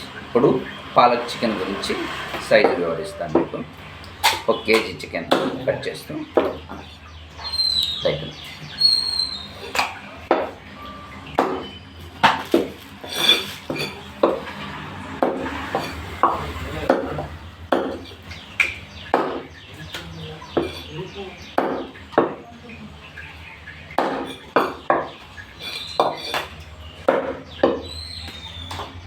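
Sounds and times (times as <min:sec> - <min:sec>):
cleaver chopping meat: 0:04.2 - 0:06.9, 0:09.7 - 0:10.6, 0:11.4 - 0:12.9, 0:15.1 - 0:22.4, 0:23.9 - 0:28.9.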